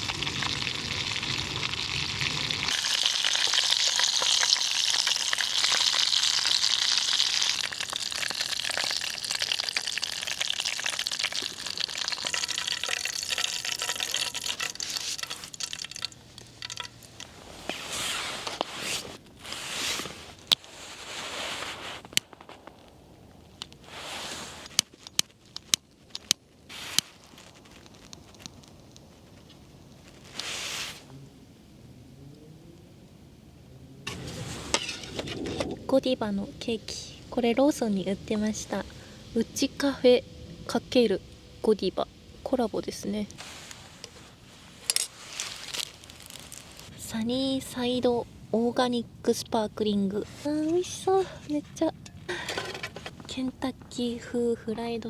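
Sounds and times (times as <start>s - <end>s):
chicken sizzling in hot oil: 0.0s - 17.1s.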